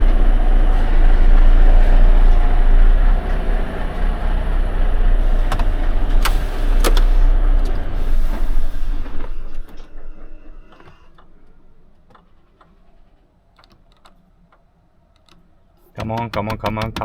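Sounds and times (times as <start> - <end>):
vehicle engine running: 0.0 - 13.3.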